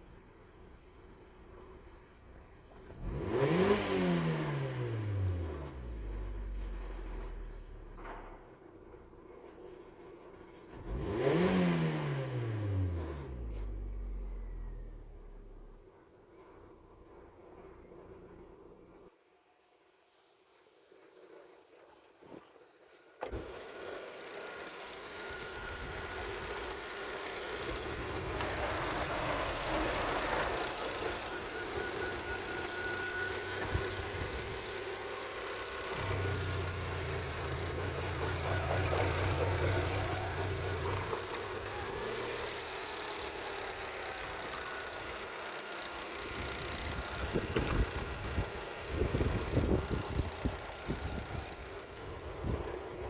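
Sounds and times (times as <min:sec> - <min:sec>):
petrol engine running: 0:23.2 - 0:53.0.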